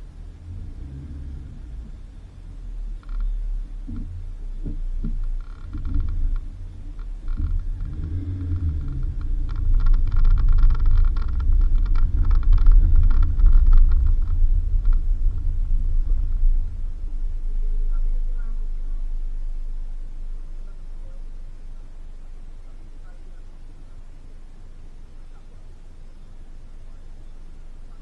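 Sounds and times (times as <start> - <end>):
vehicle engine and road rumble: 0.0 - 28.0
dense rattling and clicking: 4.7 - 19.6.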